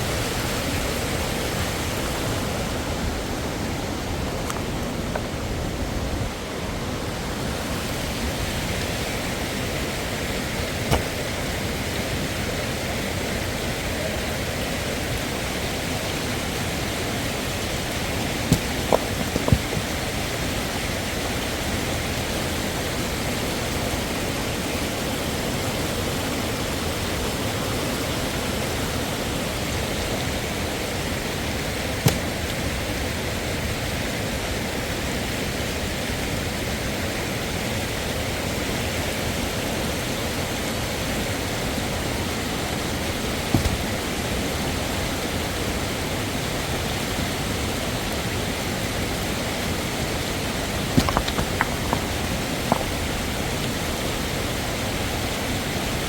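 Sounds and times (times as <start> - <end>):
short knocks: 18.4 - 20.1, 43.5 - 44.1, 51.0 - 53.2.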